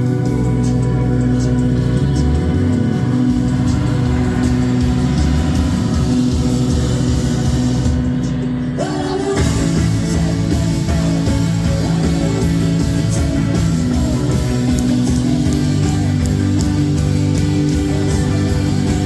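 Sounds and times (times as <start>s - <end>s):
electric guitar: 0.0s - 19.0s
live rock band playing: 0.0s - 19.0s.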